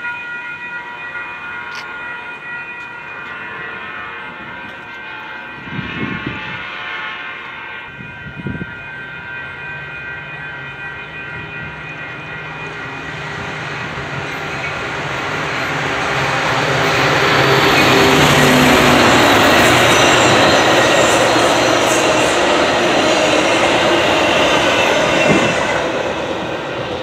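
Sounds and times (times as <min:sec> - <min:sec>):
wheels rushing on rail: 0:00.0 - 0:27.0
locomotive engine hum: 0:10.6 - 0:27.0.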